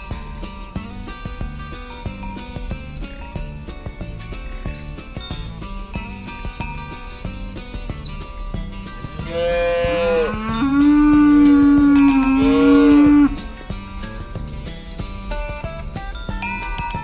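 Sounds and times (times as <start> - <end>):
background music: 0.0 - 17.0
cow mooing: 9.2 - 13.5.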